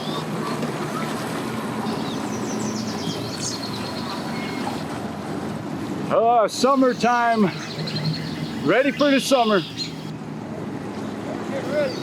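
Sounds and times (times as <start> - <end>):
watercraft engine humming: 0.0 - 12.0
birds chirping: 1.8 - 4.9, 6.6 - 10.1, 11.6 - 12.0.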